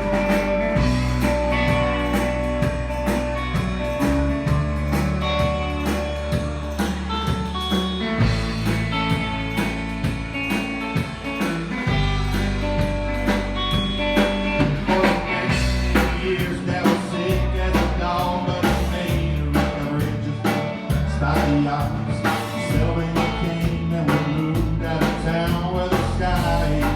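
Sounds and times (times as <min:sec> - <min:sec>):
lead guitar sustained notes: 0:00.0 - 0:16.8
bass guitar: 0:00.0 - 0:26.9
drum kit: 0:00.0 - 0:26.9.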